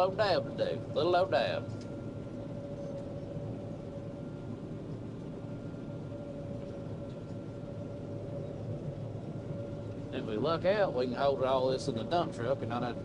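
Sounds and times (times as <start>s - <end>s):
combine harvester rumbling: 0.0s - 4.0s, 7.7s - 13.0s
constant machine whine: 0.0s - 13.0s.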